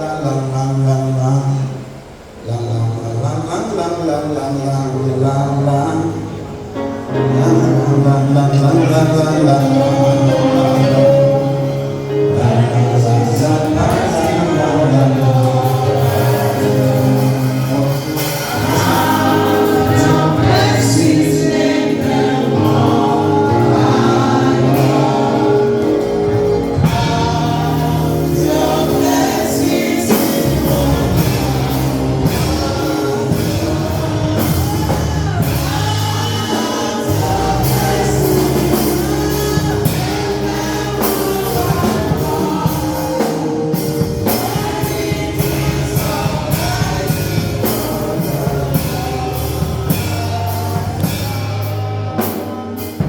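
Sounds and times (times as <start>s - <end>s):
choir singing gospel music: 0.0s - 53.0s
sustained chords and bass line: 4.9s - 53.0s.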